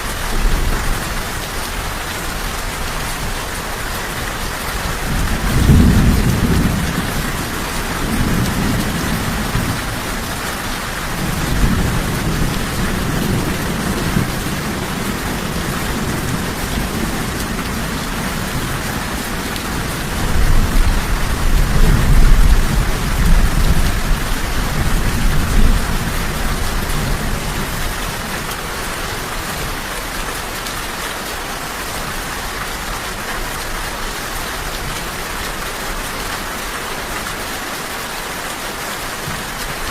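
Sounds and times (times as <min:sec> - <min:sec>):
steady rain: 0:00.0 - 0:39.9
rolling thunder: 0:05.1 - 0:28.4.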